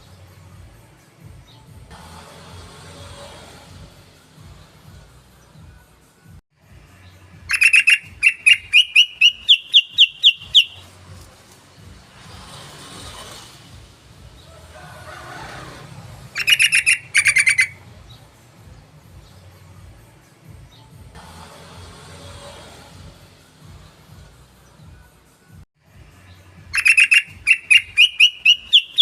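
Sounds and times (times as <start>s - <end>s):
bird singing loud chirps: 7.5s - 10.9s, 16.4s - 17.8s, 26.8s - 29.0s.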